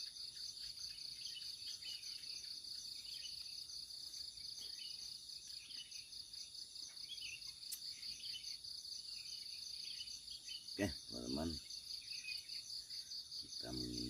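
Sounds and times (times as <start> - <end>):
bird chirps: 0.0 - 14.0
insects trilling: 0.0 - 14.0
faint click: 7.7 - 7.9.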